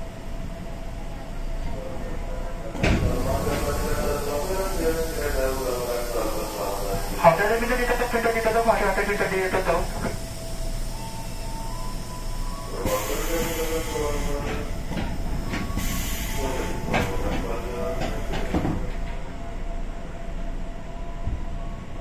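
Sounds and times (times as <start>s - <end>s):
train equipment hum with tones: 0.0s - 22.0s
air hissing bursts: 3.0s - 17.3s.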